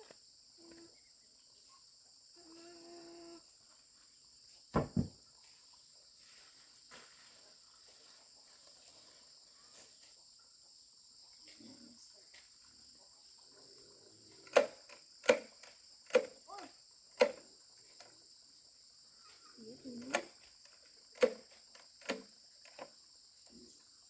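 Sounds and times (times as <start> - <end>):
crickets chirring: 0.0 - 24.0
sharp knocks: 4.8 - 5.2.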